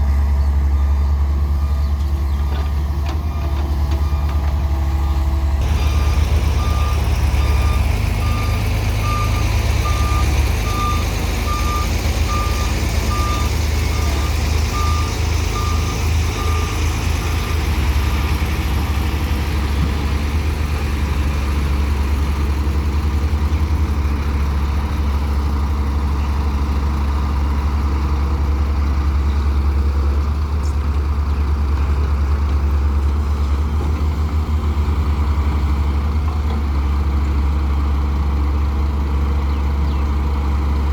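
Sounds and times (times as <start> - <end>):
heavy diesel machinery running: 0.0 - 40.9
reversing alarm beeping: 3.3 - 17.0.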